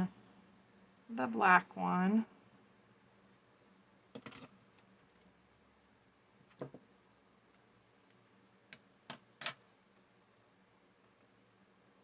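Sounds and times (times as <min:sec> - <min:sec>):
craft pieces clicking on desk: 0:08.7 - 0:09.6.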